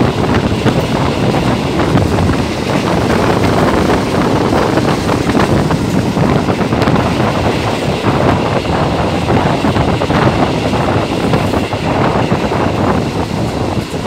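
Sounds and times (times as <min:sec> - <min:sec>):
train rumbling on rails: 0:00.0 - 0:14.0
wind buffeting microphone: 0:00.0 - 0:14.0.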